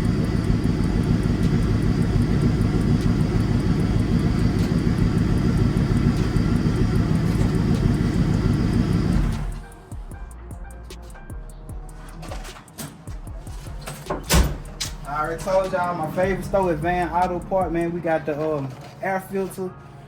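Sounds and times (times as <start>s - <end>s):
car engine idling: 0.0s - 9.9s, 14.4s - 17.9s.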